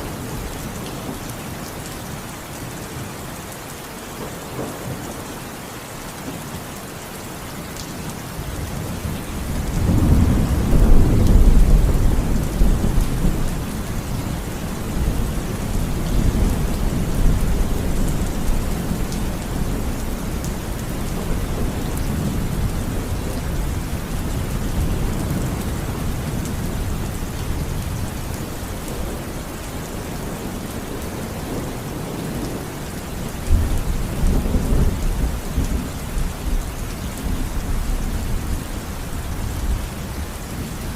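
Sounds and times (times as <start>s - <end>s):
steady rainfall: 0.0s - 40.9s
thunder rumbling: 8.6s - 32.7s.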